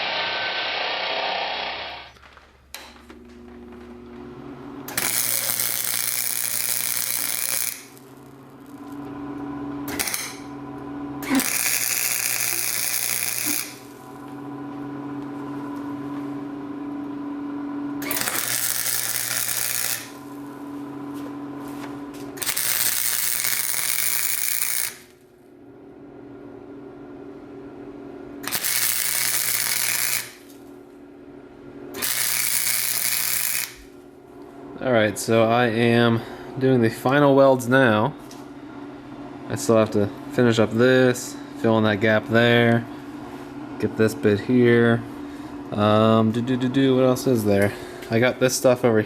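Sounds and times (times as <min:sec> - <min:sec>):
welder crackling: 0:00.0 - 0:03.0, 0:04.0 - 0:14.4, 0:18.0 - 0:25.2, 0:28.4 - 0:30.6, 0:32.0 - 0:34.0
welder hum: 0:00.0 - 0:25.3, 0:28.2 - 0:31.0, 0:31.9 - 0:48.8.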